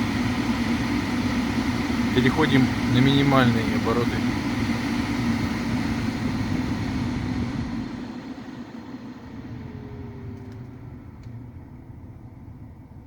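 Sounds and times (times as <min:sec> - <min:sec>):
heater blower fan airflow: 0:00.0 - 0:13.0
faint clicks: 0:10.3 - 0:11.4.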